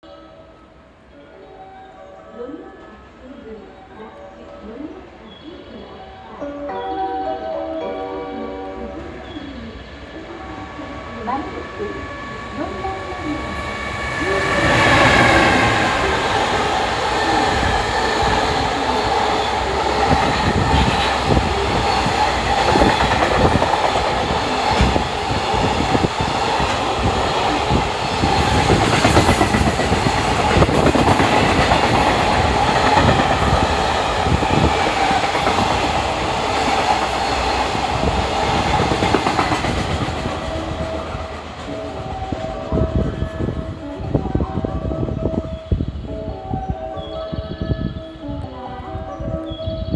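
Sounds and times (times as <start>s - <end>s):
heavy train rumble: 8.2s - 49.9s
train wheels clattering: 11.2s - 43.4s.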